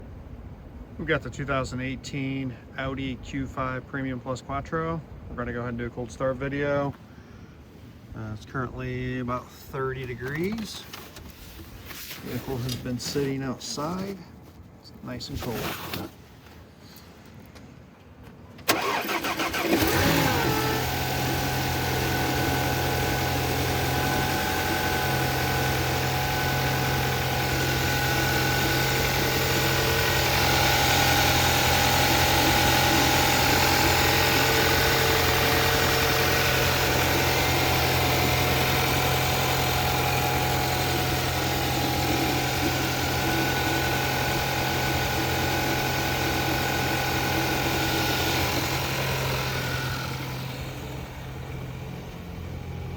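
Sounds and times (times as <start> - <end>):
car engine cold starting: 18.6 - 52.9
car engine fast idle: 18.6 - 52.9.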